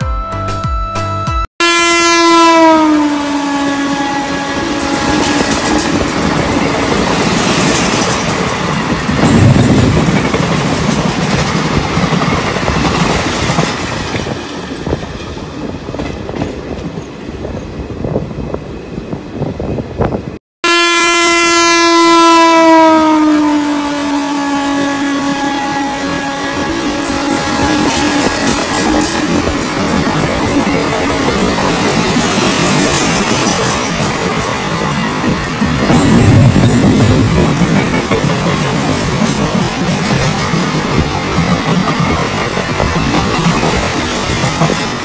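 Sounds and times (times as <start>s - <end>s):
locomotive horn falling in pitch: 1.6s - 5.7s, 20.6s - 28.5s
train coaches rattling past: 2.4s - 20.4s, 22.3s - 45.0s.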